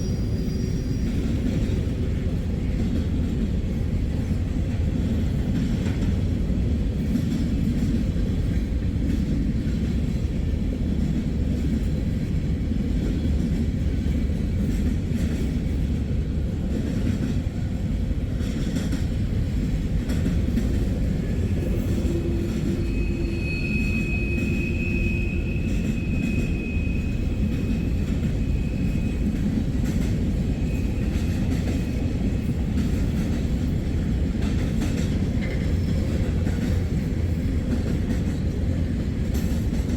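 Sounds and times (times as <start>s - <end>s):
high wheel squeal: 0.0s - 1.2s, 21.8s - 29.2s
freight train rumbling past: 0.0s - 39.9s
rails clicking under wheels: 0.1s - 39.9s.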